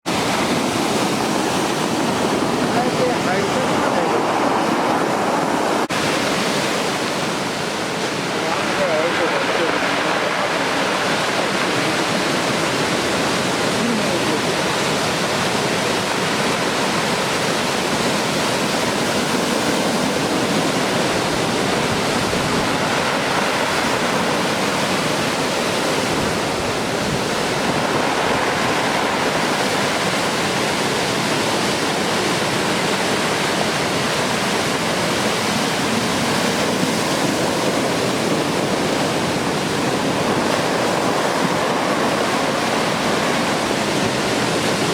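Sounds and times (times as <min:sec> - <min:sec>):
large waves breaking on beach: 0:00.0 - 0:44.9.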